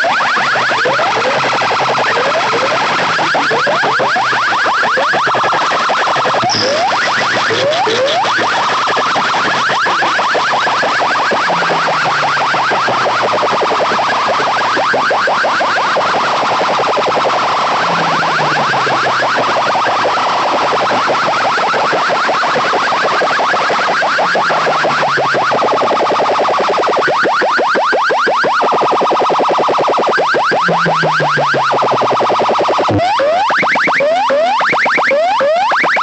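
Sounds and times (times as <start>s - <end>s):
fast pulsing electronic warble: 0.0s - 36.0s
deep falling tone: 30.6s - 32.4s.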